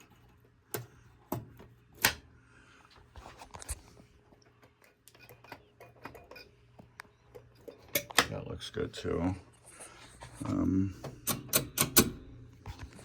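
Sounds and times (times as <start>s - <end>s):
pinball mechanisms clicking and knocking: 7.3s - 8.5s, 11.0s - 12.3s.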